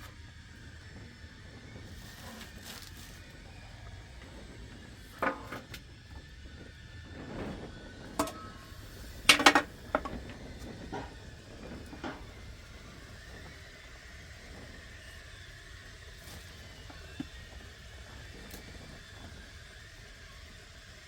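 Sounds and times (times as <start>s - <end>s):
hard objects knocking and clinking: 9.3s - 10.2s.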